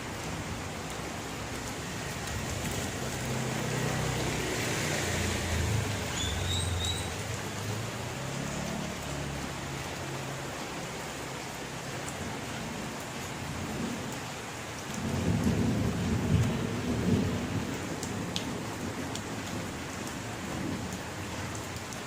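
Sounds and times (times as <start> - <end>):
steady rain falling: 0.0 - 22.0
passing vehicle rumble: 1.4 - 11.8
high bird chirps: 6.1 - 7.2.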